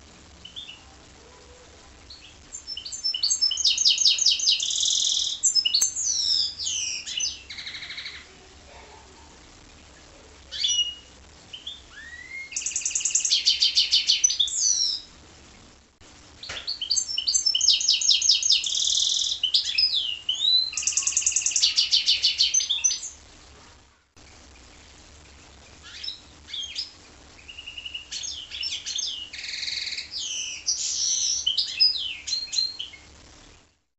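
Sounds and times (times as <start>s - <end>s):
bird singing trills and whistles: 2.1s - 8.3s, 10.5s - 15.1s, 16.4s - 23.2s, 25.8s - 33.1s.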